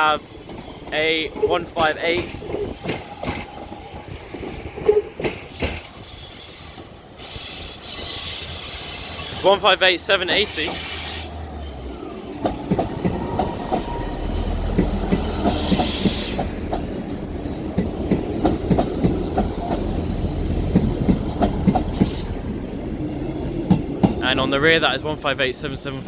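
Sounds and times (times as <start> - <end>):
train wheels clacking over rail joints: 0.0 - 9.6, 10.3 - 11.4, 12.3 - 25.0
train wheel squeals: 0.2 - 16.7, 18.4 - 22.5.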